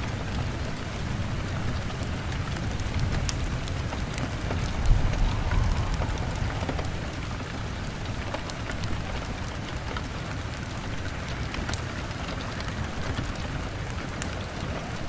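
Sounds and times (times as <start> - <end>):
rain on window glass: 0.2 - 7.3
wood fire crackling: 3.2 - 8.3
low rumble: 4.0 - 8.2.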